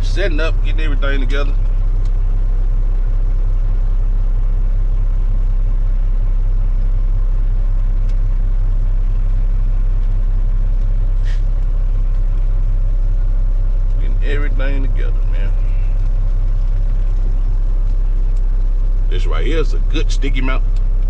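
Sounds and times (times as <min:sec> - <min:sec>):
diesel engine idling: 0:00.0 - 0:21.0
short hiss: 0:11.2 - 0:11.6.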